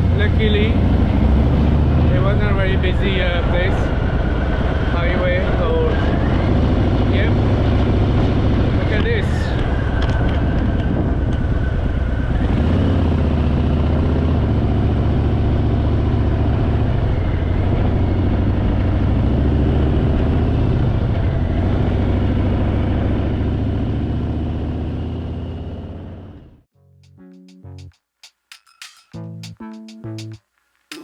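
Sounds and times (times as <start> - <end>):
motorcycle engine at speed: 0.0 - 26.6.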